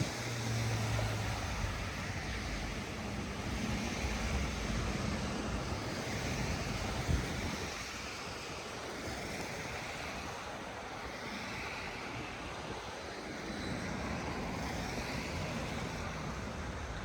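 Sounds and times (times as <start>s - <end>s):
traffic: 0.0s - 17.0s
wind: 0.0s - 17.0s.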